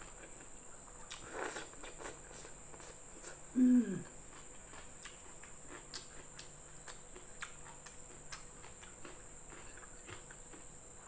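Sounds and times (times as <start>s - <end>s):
faint steady hum: 0.0s - 11.0s
wet mouth clicks chewing: 4.3s - 10.7s.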